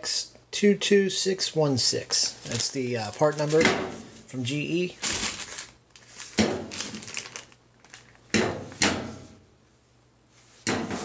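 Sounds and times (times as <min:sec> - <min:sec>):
package knocks and rustles: 0:05.0 - 0:08.6.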